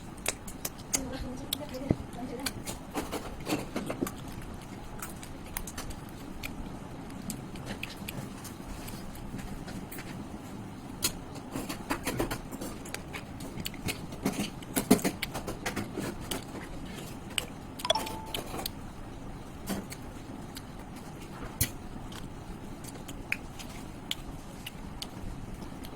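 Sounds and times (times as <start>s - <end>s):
chewing clicks and smacks: 0.2s - 1.8s, 3.8s - 9.3s, 12.8s - 15.4s, 21.6s - 25.9s.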